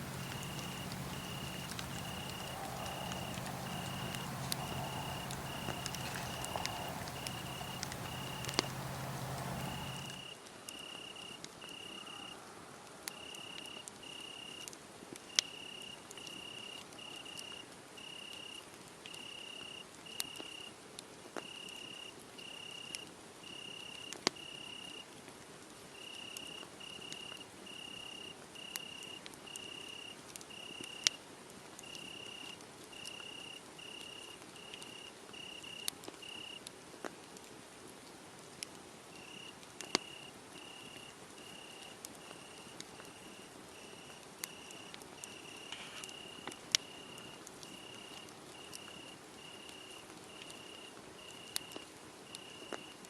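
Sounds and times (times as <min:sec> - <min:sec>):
low hum: 0:00.0 - 0:10.2
crickets chirping: 0:00.0 - 0:10.3, 0:39.2 - 0:51.7
wood fire crackling: 0:00.0 - 0:10.3.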